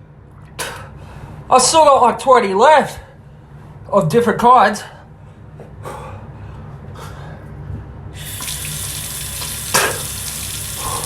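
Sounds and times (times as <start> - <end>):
water running from a tap: 8.2 - 11.0.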